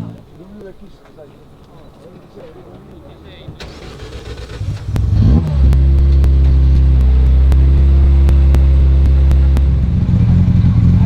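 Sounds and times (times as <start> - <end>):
rally car engine revving: 3.4 - 11.0
light sharp ticks: 4.8 - 9.9.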